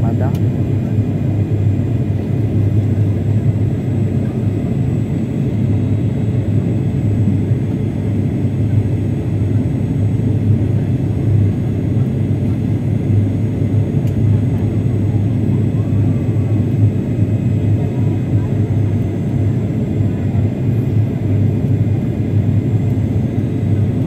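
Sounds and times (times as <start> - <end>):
airliner engine drone in cabin: 0.0 - 24.0.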